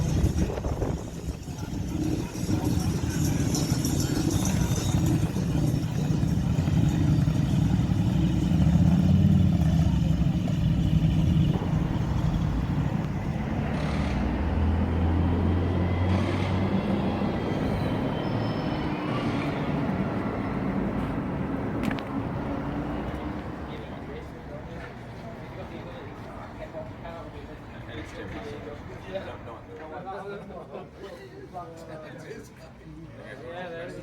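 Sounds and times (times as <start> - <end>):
vehicle engines running: 0.0 - 25.2.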